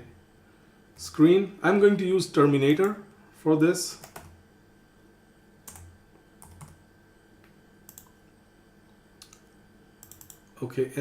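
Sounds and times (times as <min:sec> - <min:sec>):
computer keyboard key presses: 0:04.0 - 0:04.3, 0:05.7 - 0:06.8, 0:07.9 - 0:08.1, 0:09.2 - 0:10.5.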